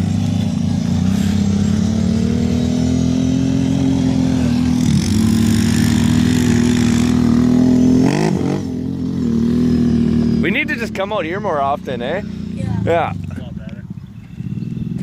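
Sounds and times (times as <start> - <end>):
quad engine at high revs: 0.0 - 15.0.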